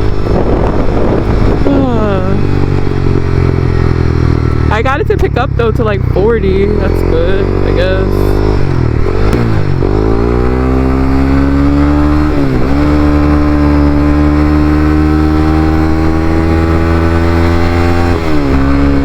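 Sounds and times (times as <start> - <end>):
motorcycle engine revving: 0.0 - 19.0
woman talking: 1.7 - 2.4, 4.7 - 8.4.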